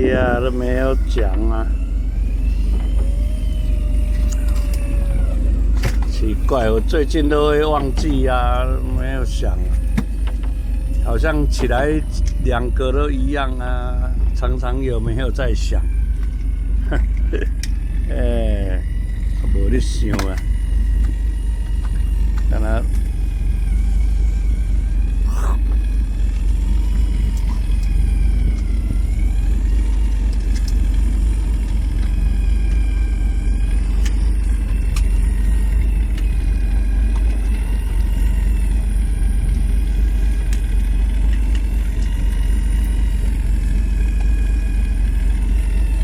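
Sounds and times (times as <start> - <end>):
wind on microphone: 0.0 - 1.1
faint wavering high tones: 0.0 - 30.3
boat engine rumbling: 0.0 - 46.0.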